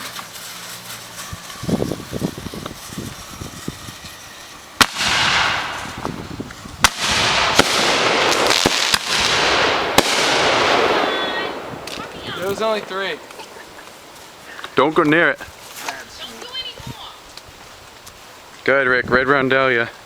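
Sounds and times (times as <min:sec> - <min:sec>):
small firework pops: 0:00.0 - 0:04.2, 0:04.8 - 0:14.8
firework bangs: 0:00.0 - 0:15.3
rushing hiss: 0:00.0 - 0:18.6.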